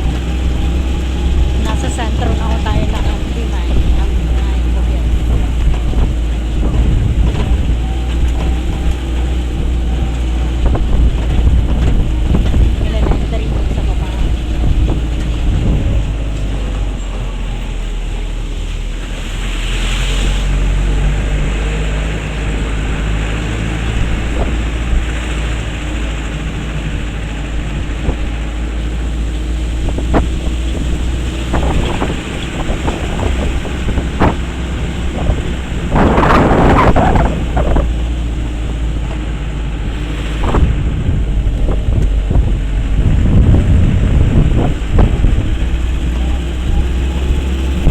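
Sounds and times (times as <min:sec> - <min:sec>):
knocks and rattles: 0:00.0 - 0:17.9
rush of noise: 0:00.0 - 0:47.9
vehicle engine rumbling: 0:00.0 - 0:47.9
wind buffeting microphone: 0:00.0 - 0:47.9.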